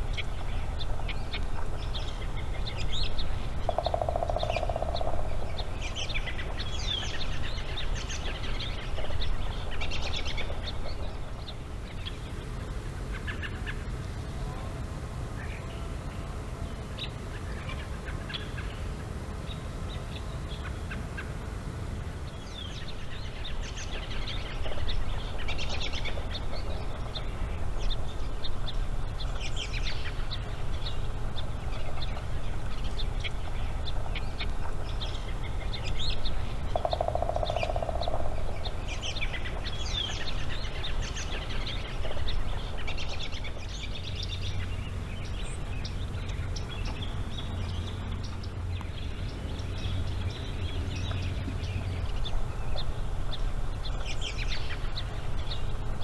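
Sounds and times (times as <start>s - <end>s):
steady low rumble: 0.0s - 18.2s, 21.4s - 56.0s.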